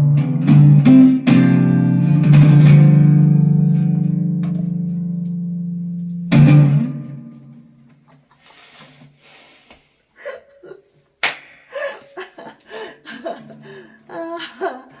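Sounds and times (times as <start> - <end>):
sharp slap: 11.2 - 11.7
person chuckling: 11.7 - 15.0.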